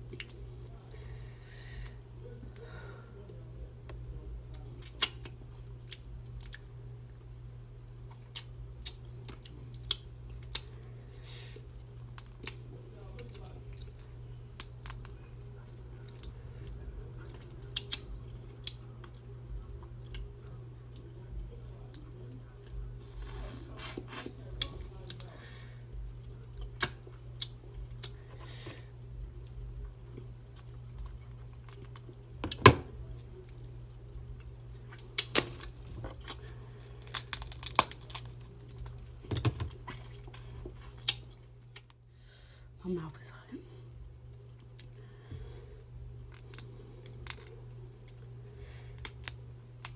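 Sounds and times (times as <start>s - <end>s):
steady low hum: 0.0s - 49.9s
tearing and chewing: 17.1s - 21.1s, 33.0s - 42.0s, 46.2s - 49.9s
seafood shells cracking: 34.9s - 40.1s, 46.3s - 48.4s, 49.0s - 49.9s.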